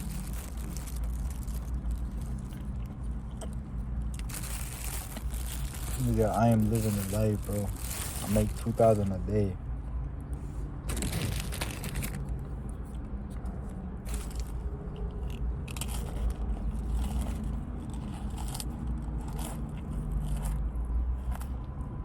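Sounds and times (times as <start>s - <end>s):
person chewing: 0.0s - 5.9s.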